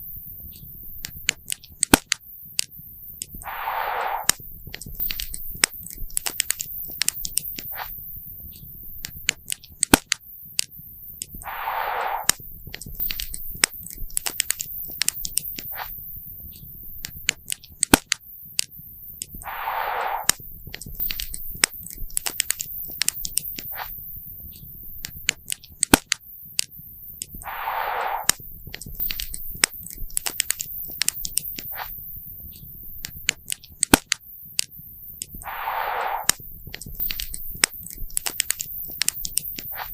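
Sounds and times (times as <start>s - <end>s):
short hiss: 3.4s - 4.4s, 11.4s - 12.4s, 19.4s - 20.4s, 27.4s - 28.4s, 35.4s - 38.0s.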